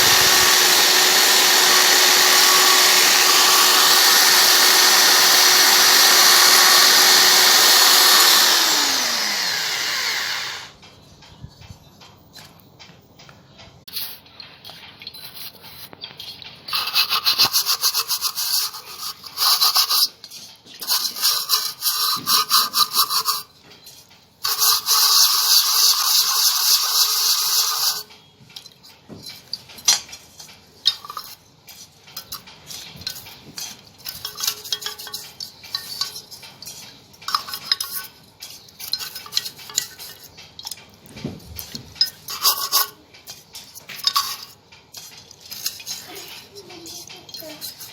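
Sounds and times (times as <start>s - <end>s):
brush scrubbing: 0.0s - 10.6s, 16.7s - 23.5s, 24.4s - 28.0s, 41.6s - 47.9s
light scrapes and clicks: 13.6s - 47.9s.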